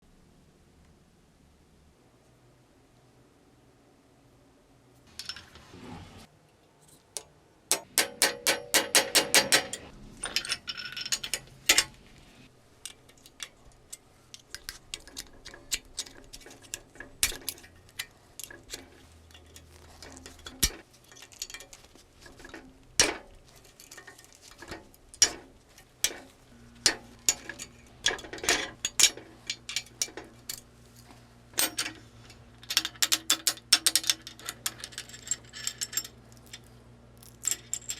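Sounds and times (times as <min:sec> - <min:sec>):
hammer striking metal: 0:07.7 - 0:09.9.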